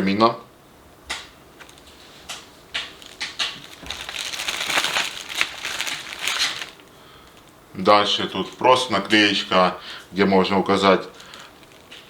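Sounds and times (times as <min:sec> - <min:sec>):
paper rustling and crinkling: 0:01.6 - 0:07.6, 0:11.0 - 0:12.0.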